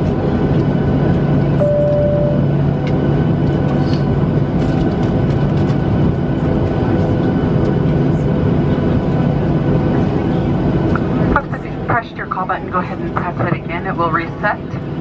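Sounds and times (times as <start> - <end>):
airplane cabin engine rumble: 0.0 - 15.0
single-tone cabin chime: 1.6 - 2.5.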